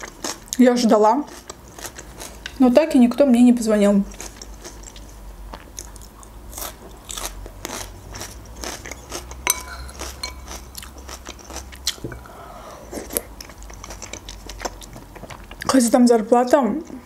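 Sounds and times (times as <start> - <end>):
bell pepper crunching when chewed: 0.0 - 0.6, 4.1 - 12.0.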